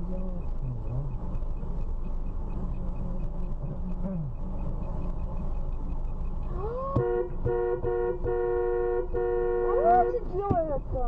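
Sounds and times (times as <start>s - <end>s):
car engine rumble: 0.0s - 11.0s
road noise: 0.0s - 11.0s
car horn: 6.4s - 10.8s.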